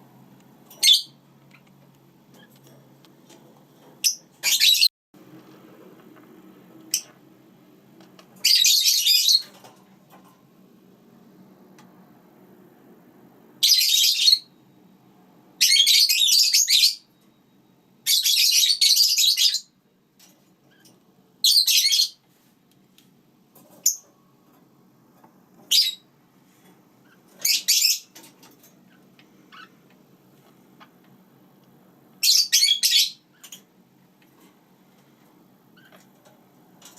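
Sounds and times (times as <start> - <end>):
parakeets chattering: 4.0 - 4.9, 8.4 - 9.5, 25.7 - 26.1, 27.0 - 28.2, 28.8 - 29.8, 32.2 - 33.6.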